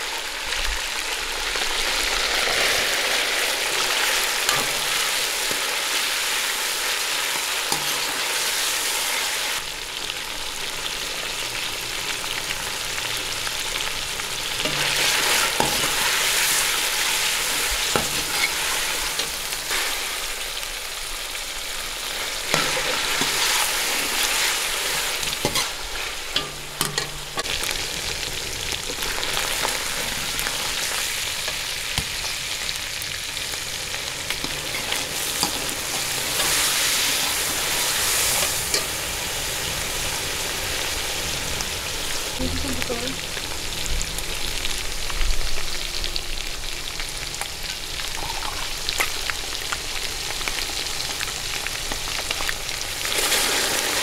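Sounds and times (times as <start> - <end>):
chicken sizzling in hot oil: 0.0 - 54.0
metal ladle scraping a pot: 17.9 - 20.0.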